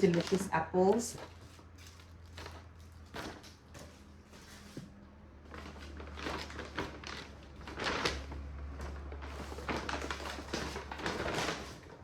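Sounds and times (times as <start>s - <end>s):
plastic packaging rustling: 0.0s - 4.8s, 5.4s - 12.0s.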